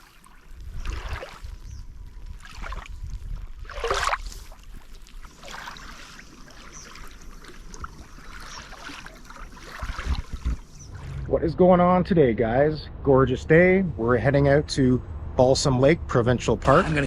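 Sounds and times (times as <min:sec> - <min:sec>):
water splashing: 0:00.0 - 0:11.7
low steady rumble: 0:10.1 - 0:17.0.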